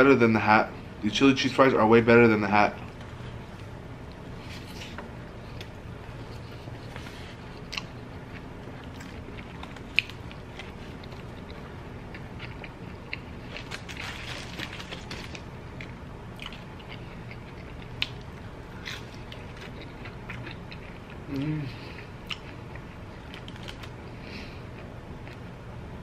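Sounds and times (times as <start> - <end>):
person chewing food: 4.0 - 25.4
crunchy food clicks: 22.2 - 24.0.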